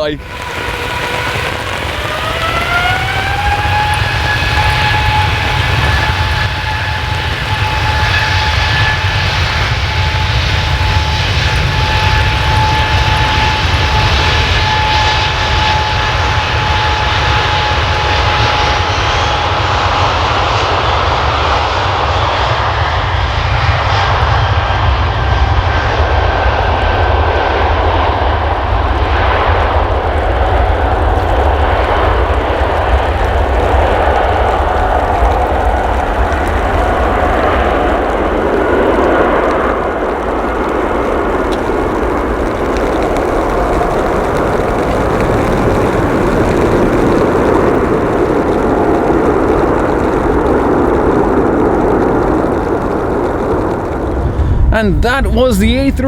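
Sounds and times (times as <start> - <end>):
high jet engine whine: 0.0 - 56.0
jet taking off: 0.0 - 56.0.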